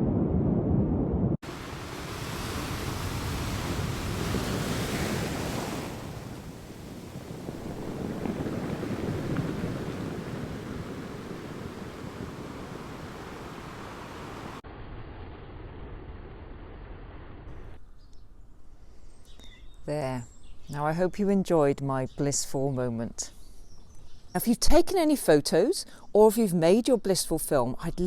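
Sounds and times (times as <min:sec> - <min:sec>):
wind on microphone: 0:00.0 - 0:14.6
deep wind rumble: 0:00.0 - 0:17.8
sea waves washing on shore: 0:01.4 - 0:14.6.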